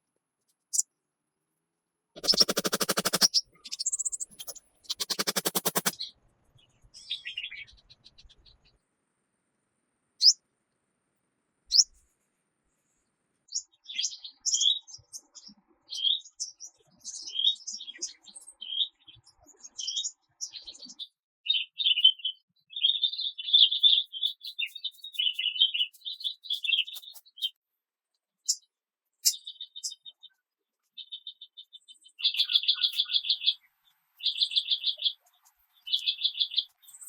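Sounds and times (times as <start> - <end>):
songbirds singing: 2.2 - 8.8, 20.0 - 27.6, 28.5 - 37.0.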